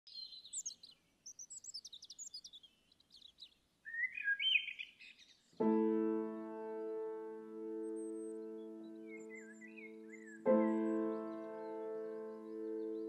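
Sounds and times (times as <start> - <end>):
bird chirps and twitters: 0.1 - 5.7, 7.7 - 13.0
sustained piano chord: 5.6 - 13.0.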